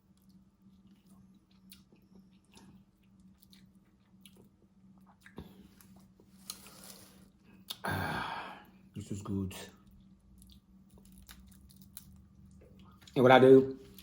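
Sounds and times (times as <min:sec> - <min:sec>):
low steady hum: 0:00.0 - 0:14.0
person chewing: 0:00.1 - 0:07.8, 0:09.9 - 0:13.2.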